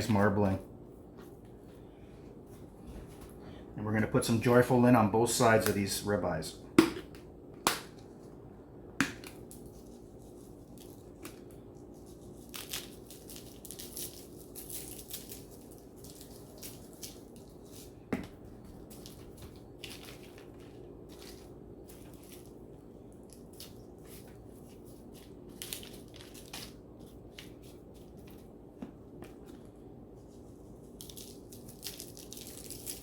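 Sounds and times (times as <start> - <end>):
seasoning shaker rustling: 9.4 - 28.4, 30.1 - 33.0.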